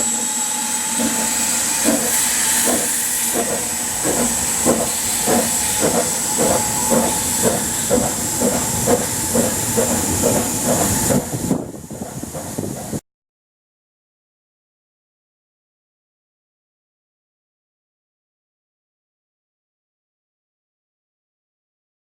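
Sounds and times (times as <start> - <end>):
steam hissing: 0.0 - 13.0
steam locomotive exhaust beats: 0.0 - 13.0.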